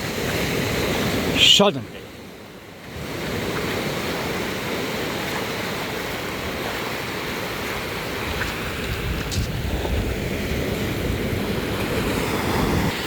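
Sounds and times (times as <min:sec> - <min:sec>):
ocean surf: 0:00.0 - 0:13.0
wind buffeting microphone: 0:05.6 - 0:13.0.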